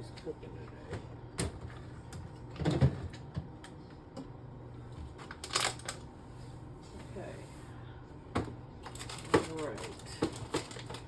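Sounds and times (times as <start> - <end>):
groceries clicking and knocking: 0.0 - 4.4, 5.0 - 6.1, 8.3 - 11.0
packaging rustling: 5.3 - 6.0, 8.8 - 11.0.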